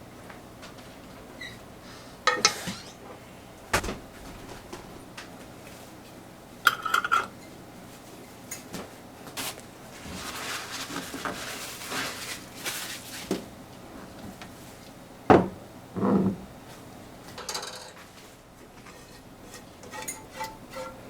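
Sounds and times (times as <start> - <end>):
dishes and utensils clattering: 17.4 - 18.0, 18.8 - 21.0.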